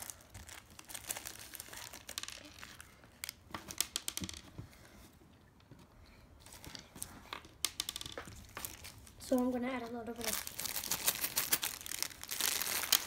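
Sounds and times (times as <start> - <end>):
packaging crinkling: 0.0 - 3.4, 8.4 - 9.2, 10.2 - 13.0.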